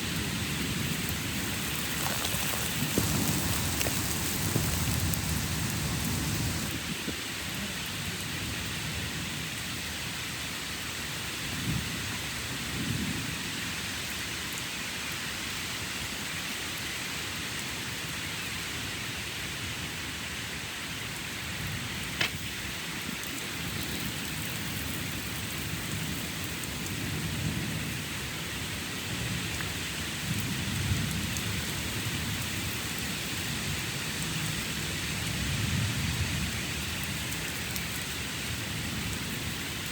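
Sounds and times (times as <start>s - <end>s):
steady rain falling: 0.0s - 39.9s
low thunder rumbling: 0.2s - 6.9s.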